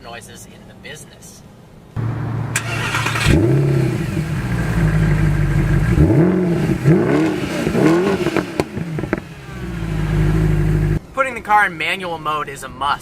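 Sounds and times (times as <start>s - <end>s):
car engine revving: 2.0s - 11.0s.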